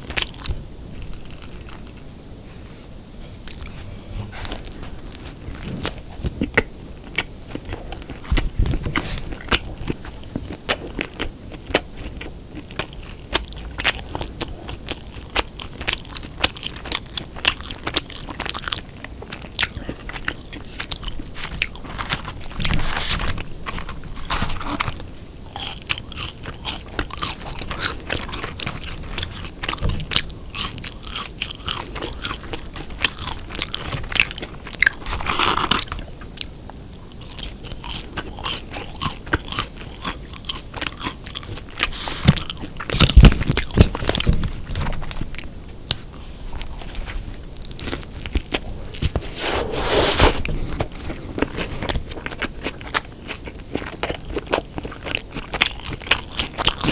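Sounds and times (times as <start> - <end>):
biting and chewing burger: 0.0 - 2.0, 3.3 - 56.9
wet mouth sounds: 48.0 - 55.7.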